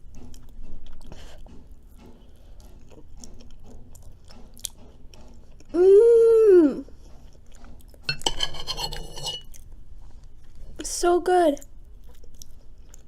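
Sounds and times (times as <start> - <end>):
wet chewing mouth sounds: 0.0 - 5.8, 6.8 - 8.1, 11.6 - 13.0.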